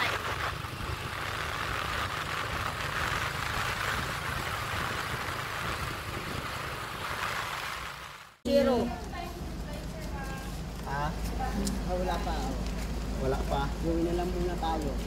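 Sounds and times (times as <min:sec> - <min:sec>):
wind rushing over microphone: 0:00.0 - 0:08.4
vehicle engine running: 0:00.0 - 0:15.0.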